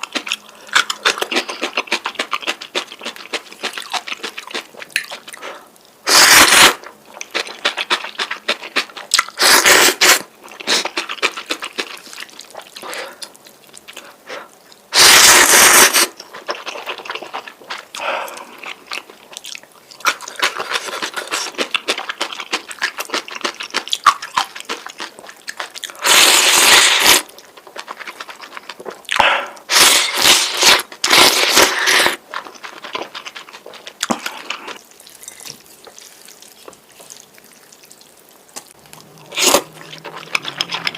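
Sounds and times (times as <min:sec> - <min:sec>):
chewing and wet mouth sounds: 0:00.0 - 0:40.9
noodle slurps: 0:03.6 - 0:06.8, 0:07.6 - 0:13.3, 0:14.9 - 0:16.2, 0:25.9 - 0:27.3, 0:27.9 - 0:37.8, 0:38.6 - 0:40.9.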